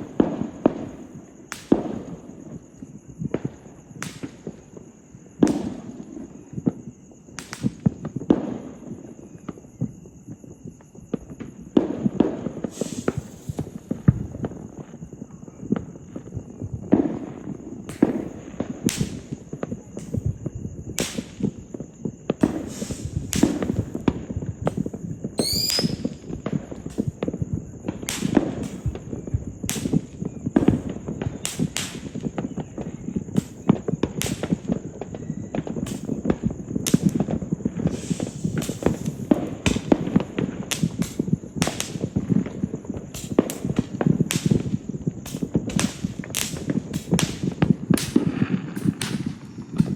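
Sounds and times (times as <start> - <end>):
fireworks bangs: 0.0 - 49.9
fireworks crackling: 0.0 - 49.9
firework whistle rising: 12.6 - 13.8, 24.7 - 27.1, 37.9 - 39.3.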